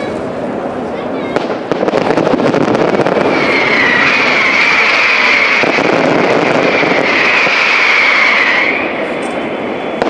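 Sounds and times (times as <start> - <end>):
fireworks crackling and hissing: 0.0 - 10.0.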